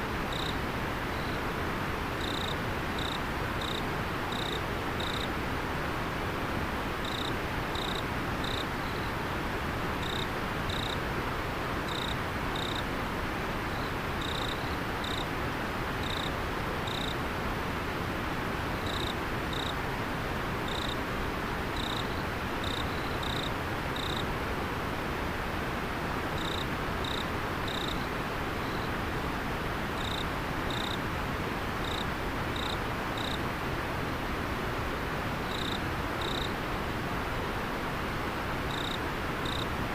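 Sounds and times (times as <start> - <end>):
insect chirping: 0.3 - 1.4, 2.2 - 5.3, 7.0 - 9.1, 10.0 - 11.0, 11.9 - 12.8, 13.7 - 15.3, 16.0 - 17.1, 18.8 - 19.8, 20.7 - 21.0, 21.8 - 24.2, 26.4 - 28.9, 30.0 - 31.0, 31.8 - 32.0, 32.6 - 33.4, 35.5 - 36.5, 38.7 - 39.7.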